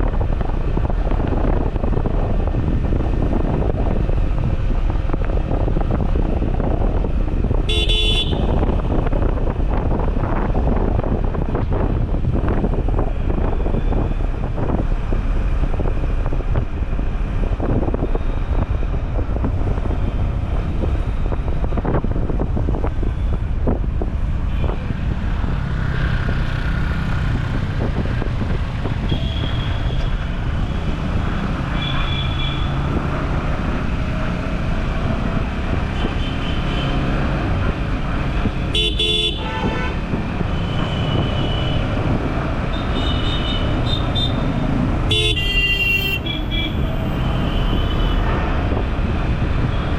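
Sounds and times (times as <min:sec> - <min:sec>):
traffic and road rumble: 0:00.0 - 0:49.9
vehicle horns tooting: 0:07.7 - 0:08.6, 0:38.7 - 0:40.0, 0:40.6 - 0:41.9, 0:42.7 - 0:44.5, 0:45.1 - 0:48.3.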